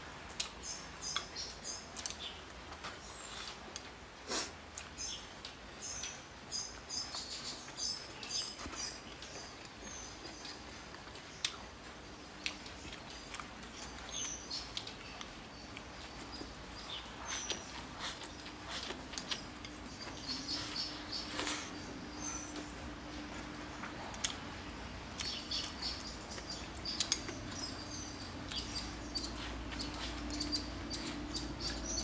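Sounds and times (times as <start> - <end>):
wet chewing and lip smacking: 7.1 - 32.0.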